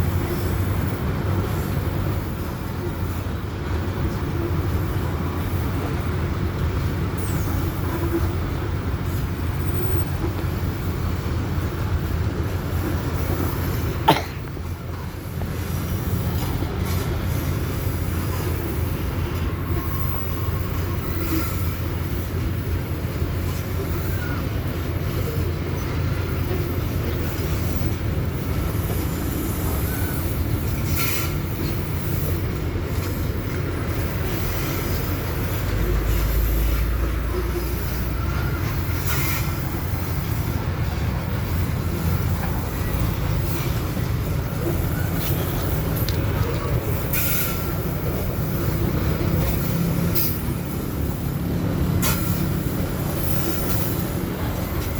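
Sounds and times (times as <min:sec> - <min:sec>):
train wagons rumbling: 0:00.0 - 0:54.9.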